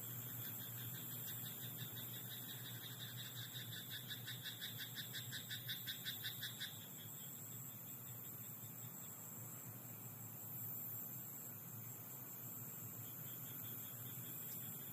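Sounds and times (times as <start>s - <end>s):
background hiss: 0.0s - 14.9s
frog croaking: 0.5s - 7.2s.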